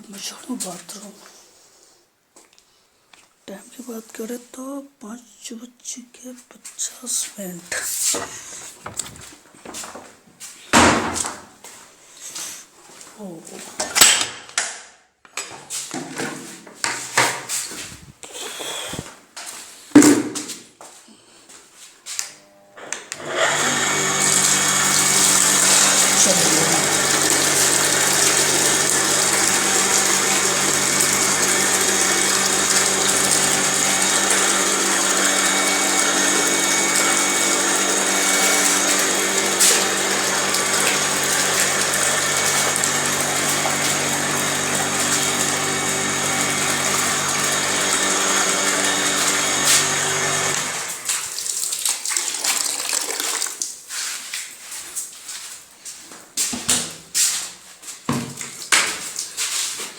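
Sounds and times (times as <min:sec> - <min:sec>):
water running: 0:23.2 - 0:55.4.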